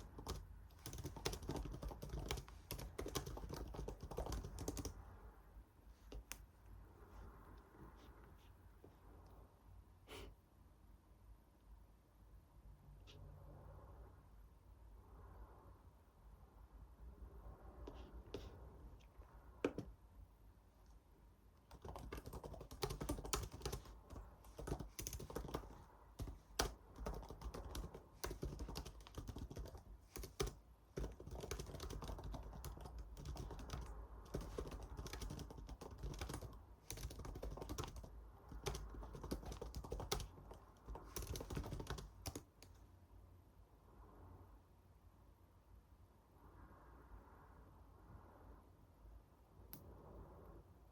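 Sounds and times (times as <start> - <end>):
typing on computer keyboard: 0.0 - 5.0, 21.7 - 42.8.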